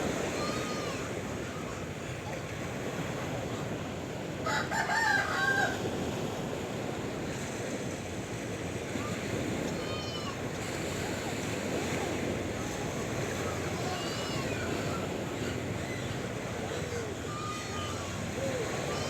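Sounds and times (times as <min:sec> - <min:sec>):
sea waves washing: 0:00.0 - 0:19.0
rooster crowing: 0:04.4 - 0:05.9.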